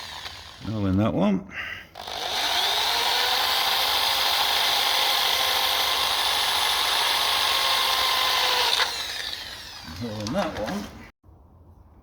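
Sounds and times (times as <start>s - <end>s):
power drill motor whining: 0.0s - 0.7s, 2.0s - 10.3s.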